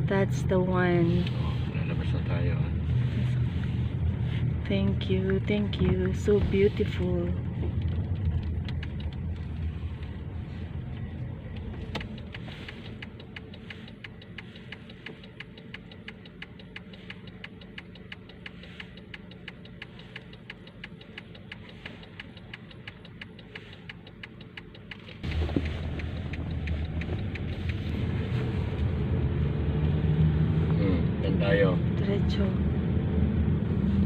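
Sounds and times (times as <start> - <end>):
car rumble inside cabin: 0.0 - 34.0
turn signal ticking: 4.0 - 30.0.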